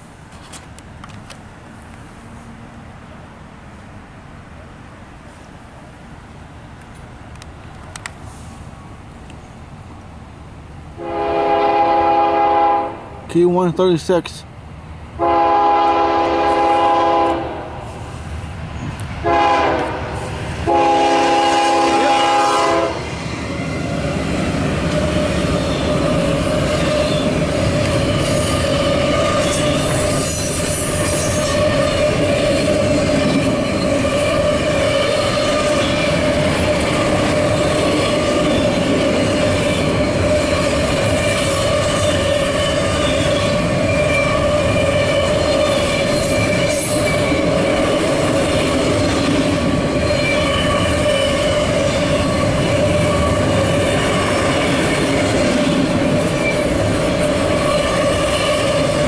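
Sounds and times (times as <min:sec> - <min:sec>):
train cars rumbling past: 0:00.0 - 0:59.0
locomotive horn blasts: 0:11.0 - 0:13.1, 0:15.2 - 0:17.8, 0:19.2 - 0:23.0
train wheel clatter: 0:22.6 - 0:59.0
sustained wheel squeal: 0:25.0 - 0:37.0, 0:39.7 - 0:47.5, 0:50.0 - 0:54.4, 0:55.4 - 0:59.0.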